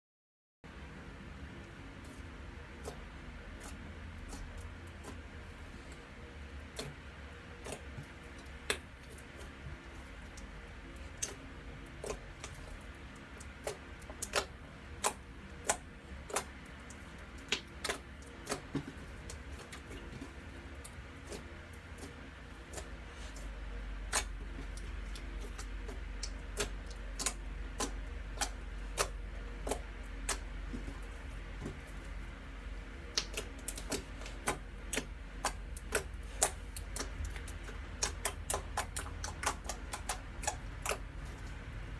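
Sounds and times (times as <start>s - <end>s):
low steady hum: 0.7s - 41.9s
slime clicking and popping: 24.1s - 30.5s, 33.1s - 41.0s.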